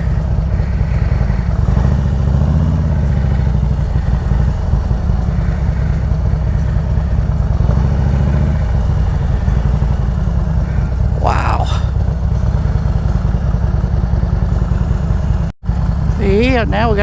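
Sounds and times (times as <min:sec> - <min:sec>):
motorcycle engine low rumble: 0:00.0 - 0:17.0.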